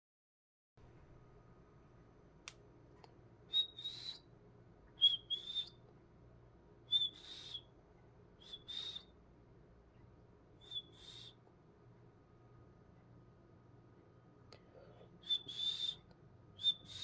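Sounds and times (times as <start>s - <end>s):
cockatiel whistled calls: 3.5s - 4.3s, 5.0s - 5.8s, 6.9s - 7.7s, 8.4s - 9.1s, 10.6s - 11.4s, 15.2s - 16.0s, 16.6s - 17.0s.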